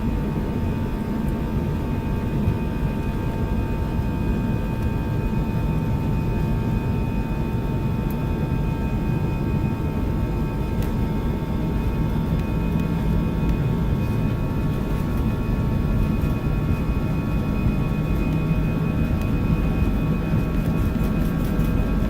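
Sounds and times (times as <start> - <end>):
airliner cabin engine hum: 0.0 - 22.0
steady whining tones: 0.0 - 22.0.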